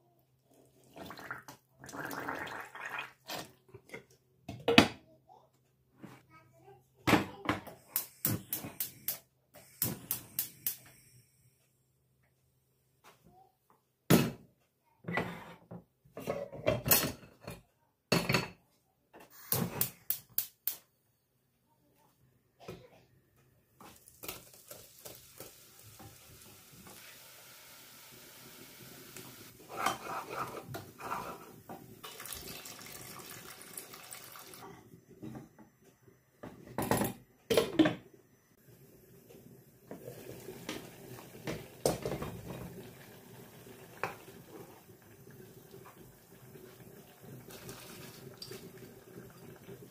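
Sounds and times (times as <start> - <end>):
dishes and cutlery clattering: 16.2 - 18.6, 29.7 - 31.0
tap running water: 23.8 - 34.6, 39.3 - 49.9.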